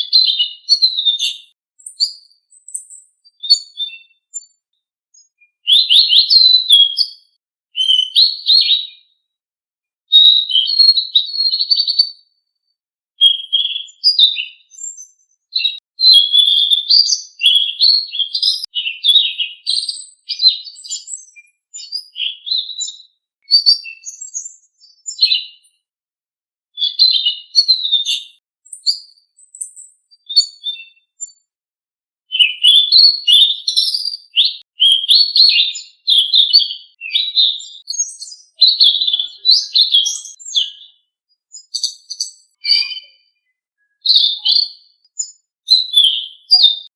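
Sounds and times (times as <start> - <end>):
songbird chirping: 0.0 - 4.6, 5.2 - 9.1, 13.2 - 25.7, 32.3 - 46.9.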